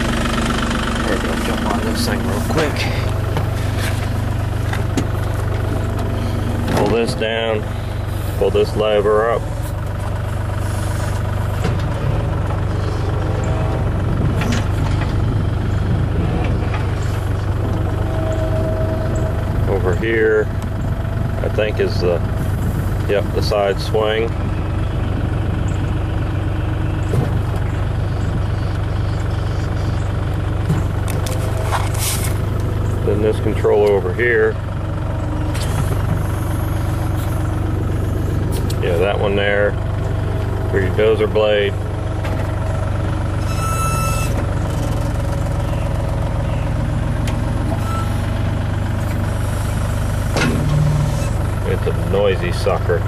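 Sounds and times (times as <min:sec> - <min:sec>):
excavator diesel engine humming: 0:00.0 - 0:53.0
high-pitched whine: 0:10.6 - 0:23.4, 0:43.4 - 0:45.1, 0:47.6 - 0:48.2.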